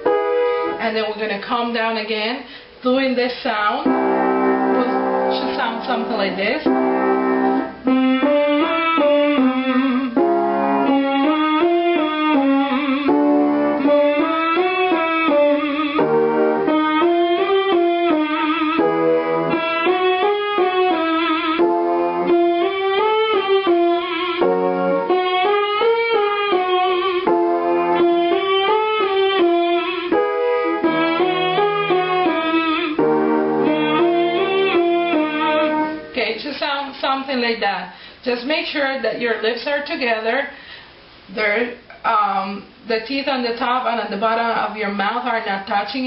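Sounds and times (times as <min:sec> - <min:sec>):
piano: 0:00.0 - 0:02.8, 0:03.7 - 0:37.1
person humming: 0:15.2 - 0:16.2, 0:32.3 - 0:33.0.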